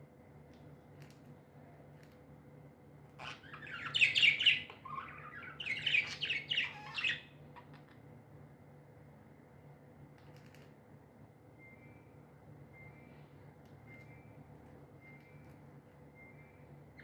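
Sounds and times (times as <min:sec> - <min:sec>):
budgerigars chirping: 0:03.2 - 0:07.2.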